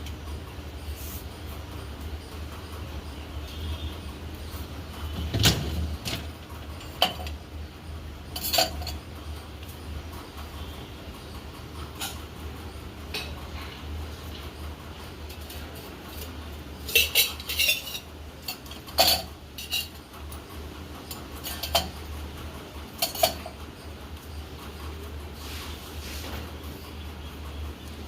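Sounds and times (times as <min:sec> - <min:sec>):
dishes and cutlery clinking: 0:08.3 - 0:09.1, 0:16.2 - 0:20.0, 0:21.4 - 0:22.0, 0:22.9 - 0:23.6.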